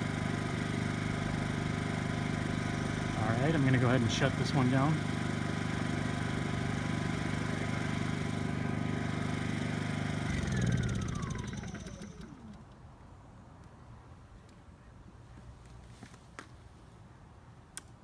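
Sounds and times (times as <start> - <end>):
generator running: 0.0 - 12.8
engine winding down whine: 2.1 - 12.8.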